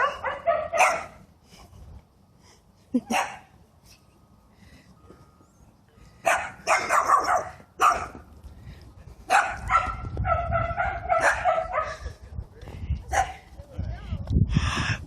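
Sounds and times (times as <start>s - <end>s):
dog barking: 0.0s - 1.2s, 3.1s - 3.5s, 6.2s - 8.2s, 9.3s - 12.0s, 13.1s - 13.4s.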